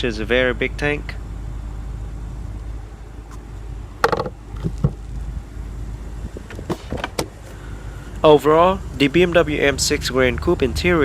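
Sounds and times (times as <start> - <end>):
car engine idling: 0.1 - 11.0
short knocks and clicks: 4.0 - 5.0.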